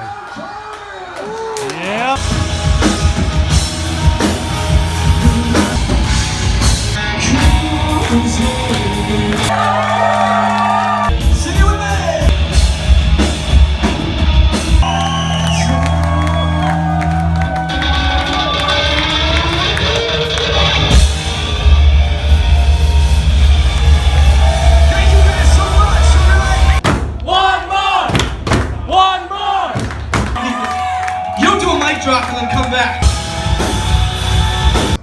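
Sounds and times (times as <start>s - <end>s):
drums: 0.0s - 35.0s
rock band playing: 2.1s - 26.8s, 30.4s - 35.0s
bass guitar: 2.2s - 26.8s, 30.1s - 35.0s
person singing: 7.0s - 10.0s
electric guitar: 15.5s - 26.8s.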